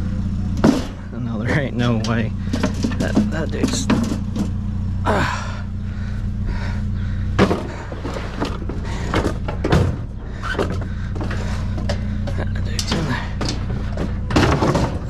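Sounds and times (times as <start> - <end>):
vehicle engine idling: 0.0 - 15.0
sharp knocks and clunks: 0.5 - 1.2, 1.8 - 4.6, 7.3 - 15.0.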